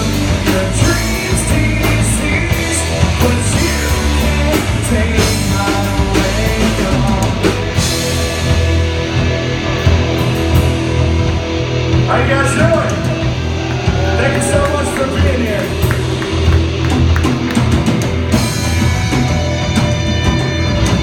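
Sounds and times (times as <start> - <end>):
person singing: 0.0 - 7.6
drums hitting: 0.0 - 21.0
live rock band playing: 0.0 - 21.0.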